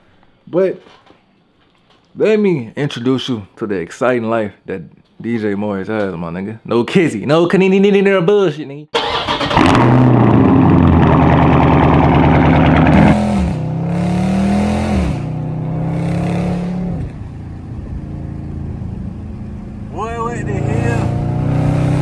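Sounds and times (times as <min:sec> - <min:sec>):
car engine accelerating hard: 0:09.0 - 0:22.0.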